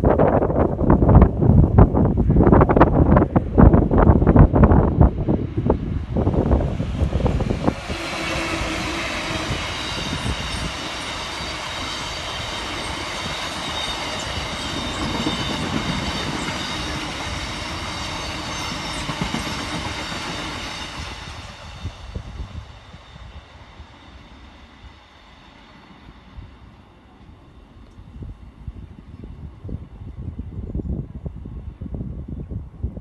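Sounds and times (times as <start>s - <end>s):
freight train rumbling past: 0.0s - 33.0s
high ringing wheel squeal: 7.9s - 26.7s.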